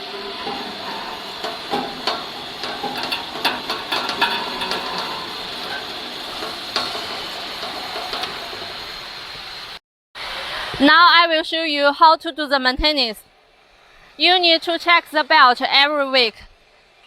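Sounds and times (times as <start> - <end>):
metal clanks and knocks: 0.0 - 9.0
steady hiss: 0.0 - 17.0.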